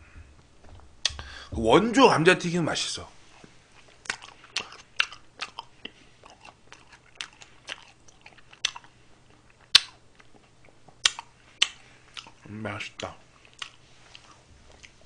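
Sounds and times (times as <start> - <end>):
person chewing close up: 3.3 - 12.5, 13.3 - 15.0
wet mouth clicks and lip smacks: 9.5 - 12.4.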